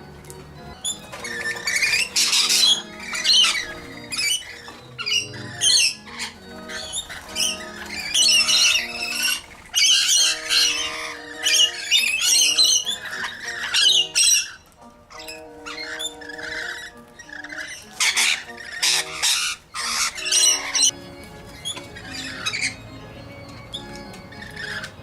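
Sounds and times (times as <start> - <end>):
background music: 0.0 - 25.0
bird squawking harshly: 1.2 - 21.0, 21.6 - 22.8.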